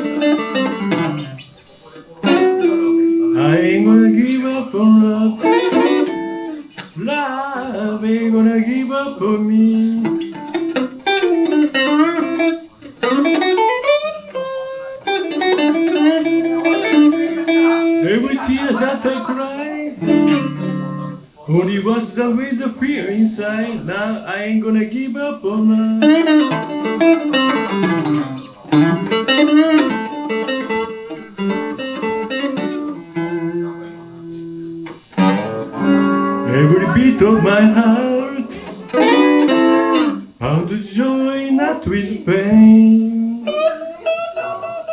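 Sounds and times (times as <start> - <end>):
electric guitar blues lead: 0.0 - 44.9
person singing: 2.3 - 10.4, 17.3 - 26.3, 32.6 - 34.9, 35.7 - 44.9.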